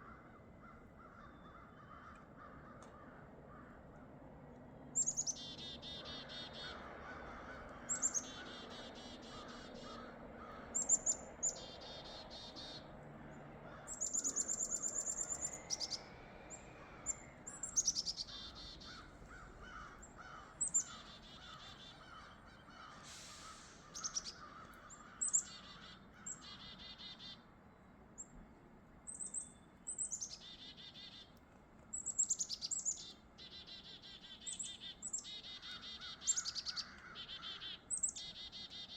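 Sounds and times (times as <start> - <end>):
chickadees calling: 5.0 - 13.0, 13.6 - 27.5, 32.0 - 38.9.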